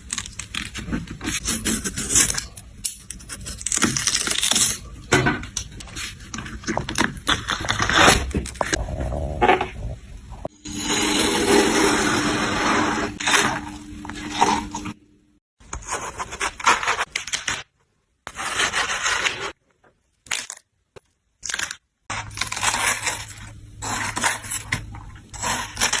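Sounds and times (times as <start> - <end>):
crunching and scraping: 18.3 - 26.0.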